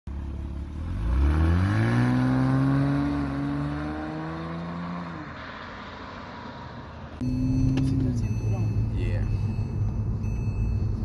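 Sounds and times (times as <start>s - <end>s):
car engine accelerating away: 0.2s - 5.2s.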